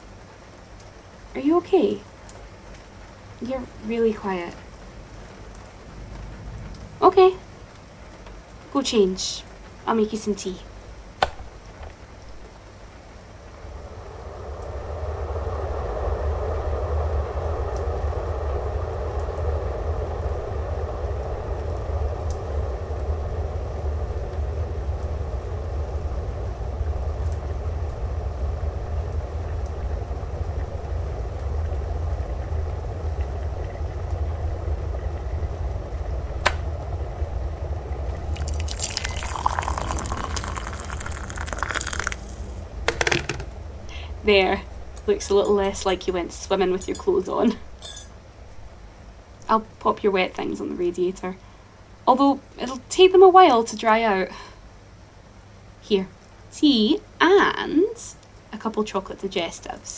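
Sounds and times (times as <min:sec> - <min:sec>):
kettle boiling rumble: 0:00.0 - 0:59.9
water pouring into mug: 0:38.2 - 0:42.5.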